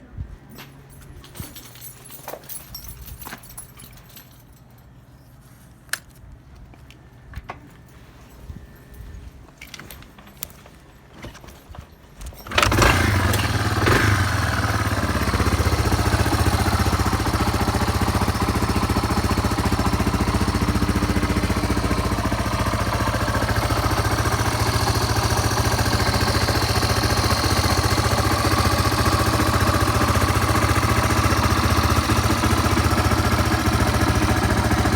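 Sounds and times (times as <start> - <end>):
motorcycle engine idling: 12.6 - 34.9.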